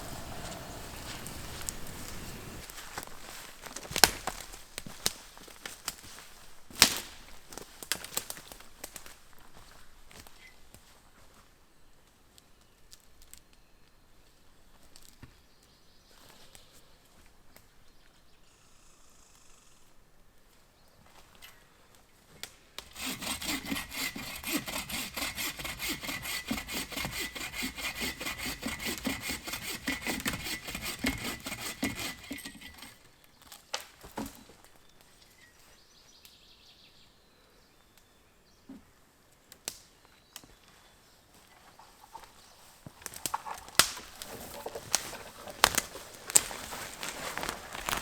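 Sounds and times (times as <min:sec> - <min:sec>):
hand saw cutting wood: 0:00.0 - 0:03.1, 0:22.8 - 0:33.1, 0:43.0 - 0:48.0
sharp knocks and snaps: 0:43.0 - 0:48.0.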